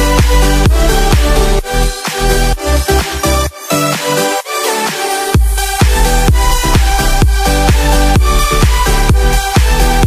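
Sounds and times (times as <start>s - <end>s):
kick drum: 0.0s - 3.2s, 5.4s - 10.0s
synth chords: 0.0s - 10.0s.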